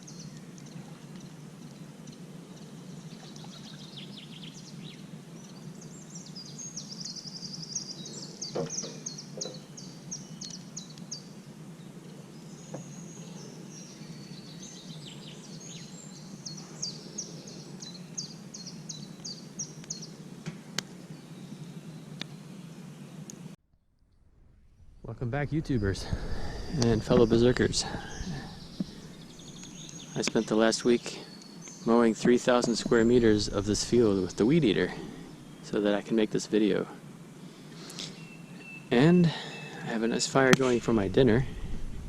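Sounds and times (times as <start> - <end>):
songbird chirping: 0.0 - 23.4, 24.7 - 36.9, 37.6 - 41.9
low background rumble: 23.8 - 30.8, 31.8 - 35.9, 40.6 - 42.0.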